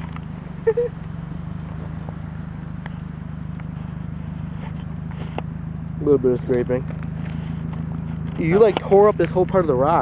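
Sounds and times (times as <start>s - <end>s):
car engine idling: 0.0s - 10.0s
short chirp: 2.7s - 3.3s.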